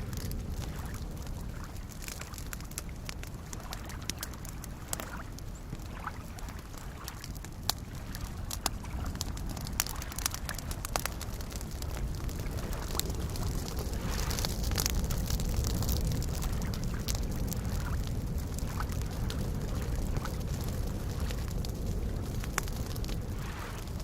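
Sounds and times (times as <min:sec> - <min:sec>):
small waves lapping: 0:00.0 - 0:21.4, 0:22.1 - 0:23.9
campfire crackling: 0:00.0 - 0:24.0.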